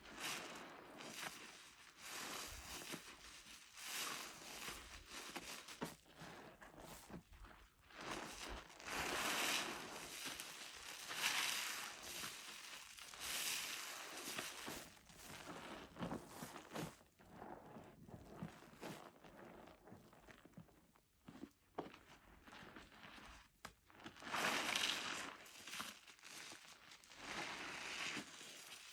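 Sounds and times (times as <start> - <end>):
soapy sponge squelching: 0.1 - 28.9.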